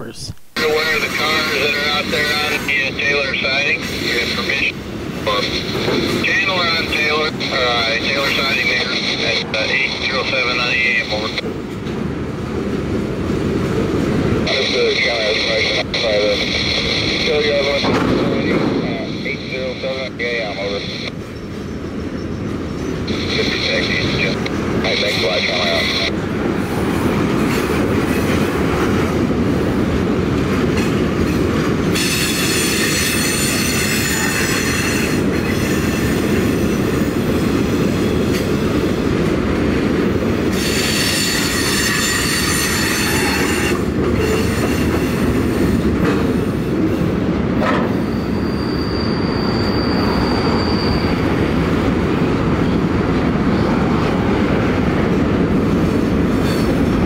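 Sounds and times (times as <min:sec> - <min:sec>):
train wheels rumbling on rail: 0:00.6 - 0:57.0
wheel squeal: 0:47.9 - 0:51.4.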